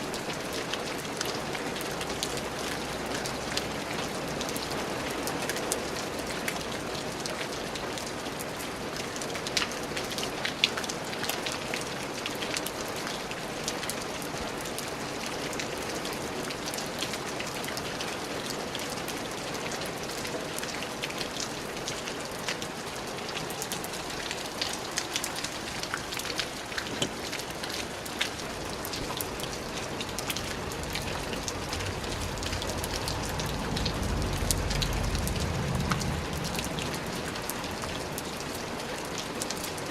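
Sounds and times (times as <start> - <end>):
rain falling steadily: 0.0 - 39.9
low rumble: 30.4 - 37.8.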